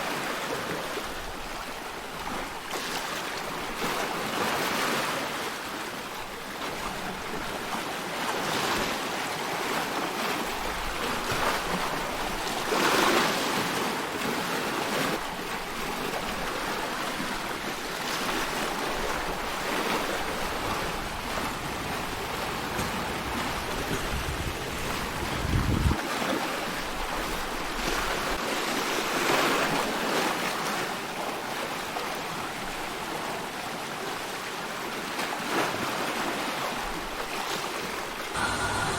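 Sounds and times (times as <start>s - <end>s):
ocean waves washing: 15.2s - 29.2s, 38.2s - 38.9s.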